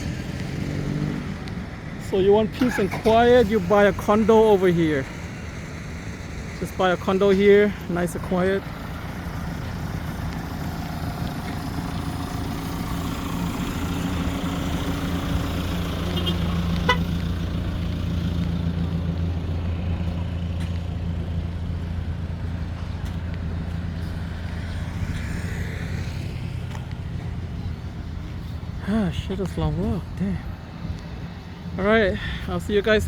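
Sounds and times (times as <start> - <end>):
vehicle engine hum: 0.0 - 33.0
car horn toot: 16.1 - 17.2.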